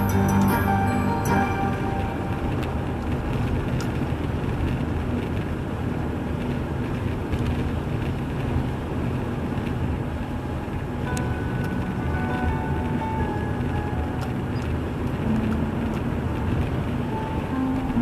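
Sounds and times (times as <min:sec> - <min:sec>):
music: 0:00.0 - 0:03.1, 0:11.1 - 0:18.0
car engine and road rumble: 0:00.0 - 0:18.0.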